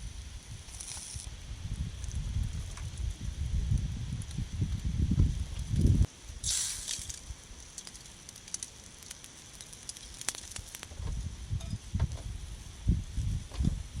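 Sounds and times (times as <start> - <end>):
wind buffeting microphone: 0.0 - 6.1, 10.9 - 14.0
fire crackling and popping: 0.0 - 11.6
short hiss: 6.4 - 7.2.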